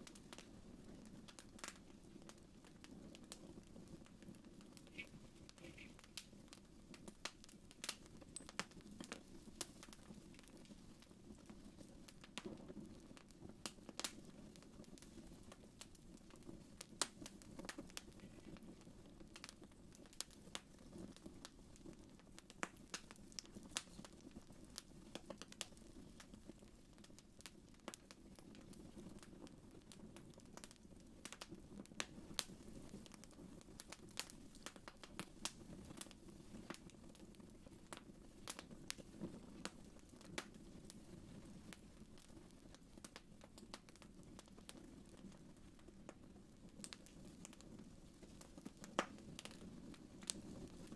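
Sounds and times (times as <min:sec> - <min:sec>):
fire popping and snapping: 0:00.0 - 0:50.9
wood fire crackling: 0:00.0 - 0:50.9.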